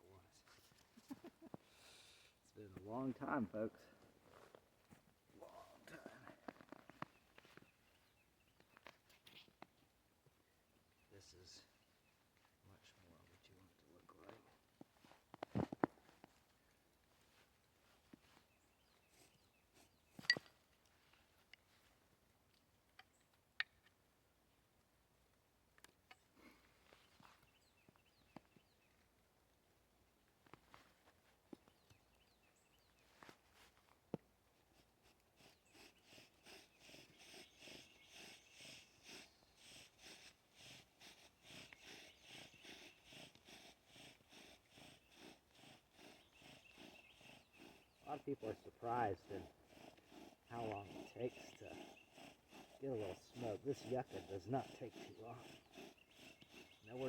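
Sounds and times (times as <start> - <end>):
bow drill spindle rasping: 34.6 - 57.0.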